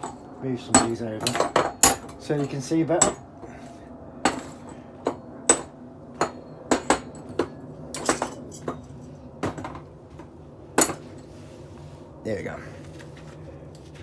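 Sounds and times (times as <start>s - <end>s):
metal clinks and knocks: 0.0s - 3.3s, 4.3s - 11.3s.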